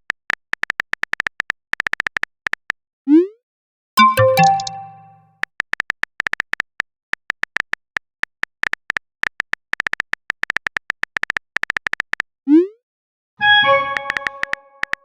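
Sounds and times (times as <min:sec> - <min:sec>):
phone keyboard typing clicks: 0:04.0 - 0:12.2, 0:13.9 - 0:15.0.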